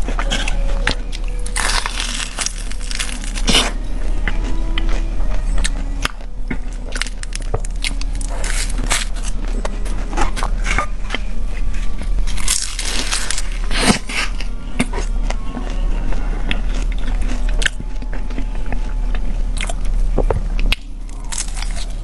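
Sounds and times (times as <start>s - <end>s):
crunching and chewing food: 0.0s - 22.0s.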